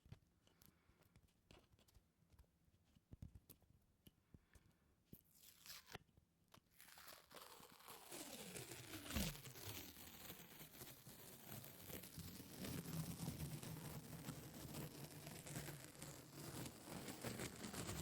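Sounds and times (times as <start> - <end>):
sticky material peeling apart: 6.7 - 10.7.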